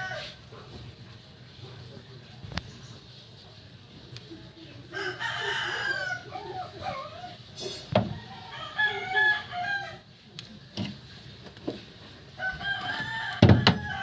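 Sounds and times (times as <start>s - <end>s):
rooster crowing: 0.0s - 0.4s, 4.9s - 7.3s, 8.0s - 10.1s, 12.4s - 14.0s
sharp knocks: 13.4s - 13.8s.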